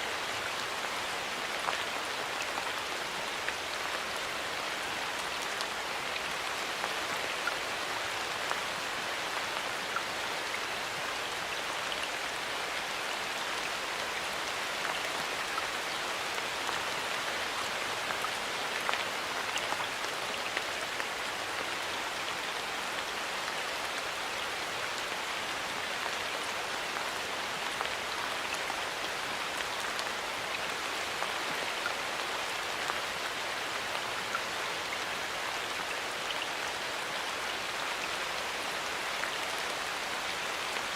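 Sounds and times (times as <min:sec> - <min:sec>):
rain falling in a forest: 0:00.0 - 0:40.9.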